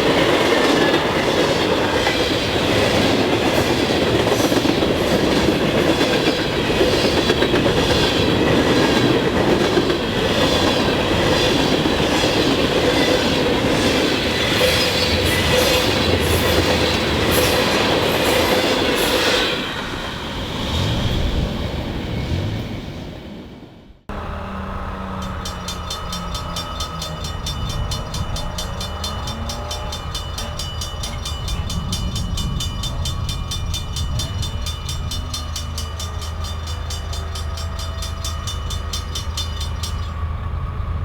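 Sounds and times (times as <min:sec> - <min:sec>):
train wheels clacking over rail joints: 0:00.0 - 0:19.7, 0:25.0 - 0:40.2
metallic wheel squeal: 0:24.1 - 0:40.4.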